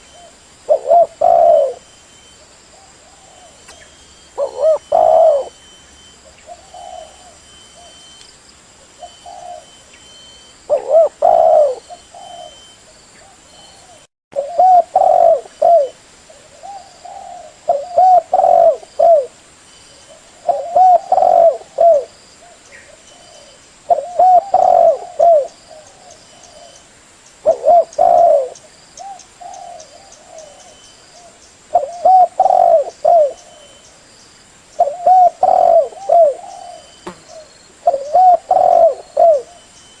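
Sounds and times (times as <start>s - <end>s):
dove cooing: 0.0s - 8.1s, 8.9s - 19.4s, 20.0s - 26.8s, 27.4s - 33.8s, 34.8s - 39.7s.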